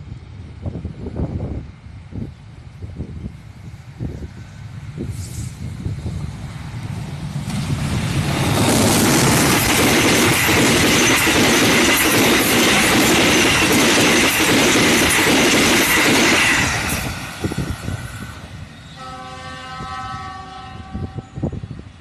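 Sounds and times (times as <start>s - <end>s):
train wheels rushing on rails: 0.0s - 22.0s
train horn chord: 19.0s - 21.5s.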